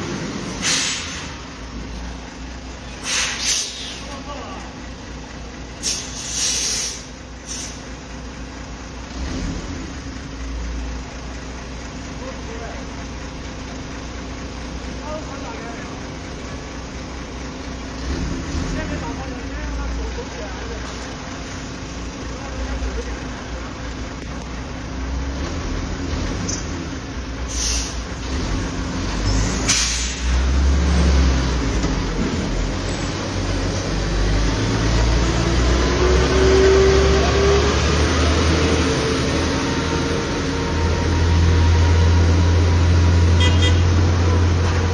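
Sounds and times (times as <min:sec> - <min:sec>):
diesel truck engine rumbling: 0:00.0 - 0:44.9
air brake hiss: 0:00.5 - 0:01.5, 0:02.9 - 0:04.2, 0:05.8 - 0:07.9, 0:27.5 - 0:28.1, 0:29.3 - 0:30.4.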